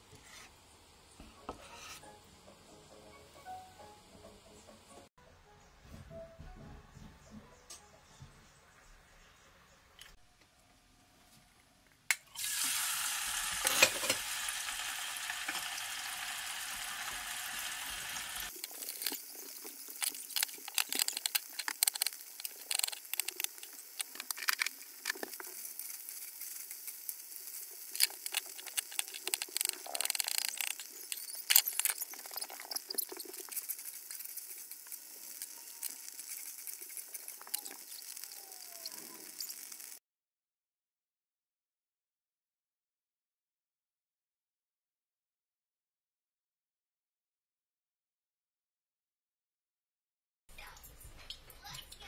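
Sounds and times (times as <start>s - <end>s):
tofu deep-frying sizzle: 12.3s - 40.0s.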